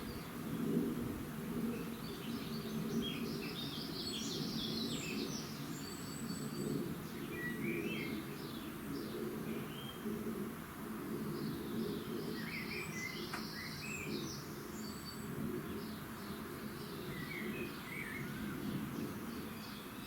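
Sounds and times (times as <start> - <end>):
small birds chirping: 11.2 - 20.0.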